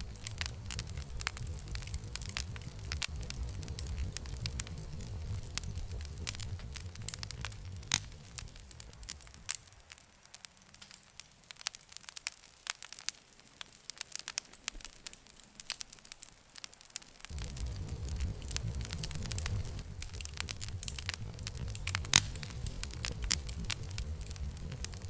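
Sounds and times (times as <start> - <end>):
low rumble: 0.0 - 9.6, 17.3 - 25.0
campfire crackling: 0.0 - 25.0.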